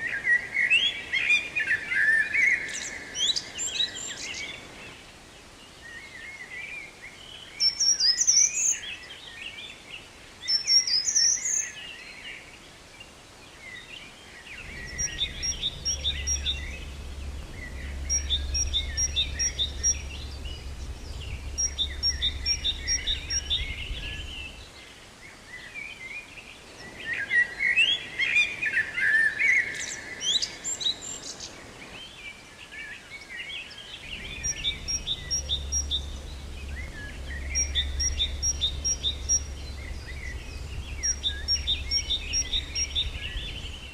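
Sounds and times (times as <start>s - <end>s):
birds singing and chirping: 7.3s - 9.7s, 10.5s - 12.1s, 14.4s - 24.9s, 33.3s - 43.9s
steady low hum: 14.5s - 24.7s, 34.0s - 43.9s.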